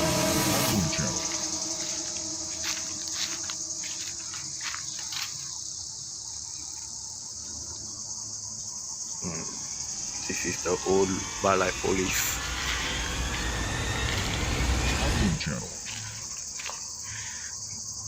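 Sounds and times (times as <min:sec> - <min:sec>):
insects chirping chorus: 0:00.0 - 0:18.0
rumbling sound: 0:09.2 - 0:16.3.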